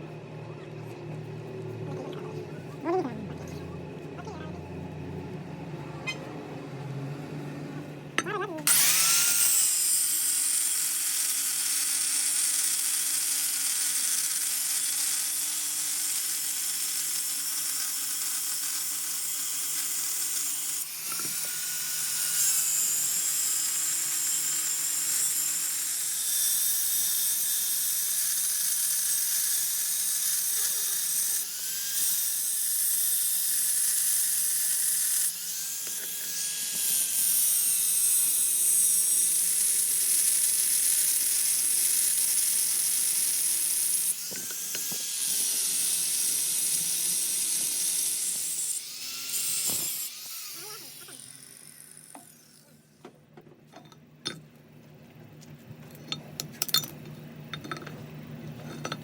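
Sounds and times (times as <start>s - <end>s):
power tool whining on metal: 6.0s - 53.2s, 57.5s - 59.0s.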